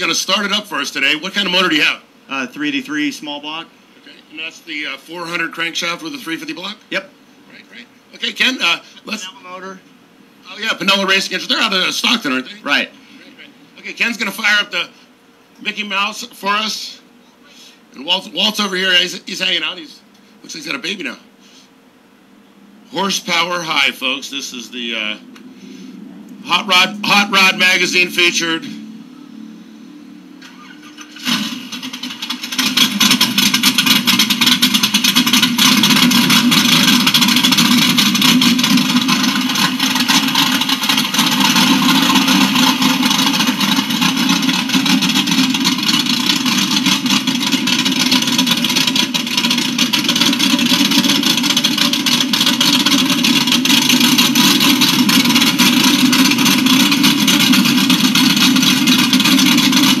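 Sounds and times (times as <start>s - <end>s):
loud car engine starting and running: 0.0s - 7.5s, 8.1s - 21.4s, 22.6s - 60.0s.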